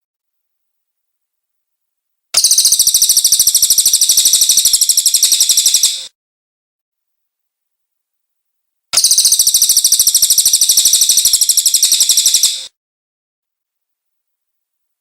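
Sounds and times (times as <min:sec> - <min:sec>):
bird trilling: 0:02.4 - 0:06.1, 0:09.0 - 0:12.7.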